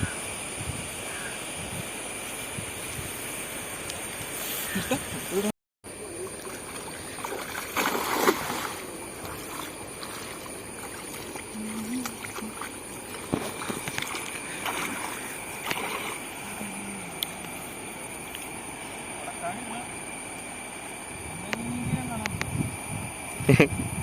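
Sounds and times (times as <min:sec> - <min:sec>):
water splashing and sloshing: 0:06.0 - 0:18.7.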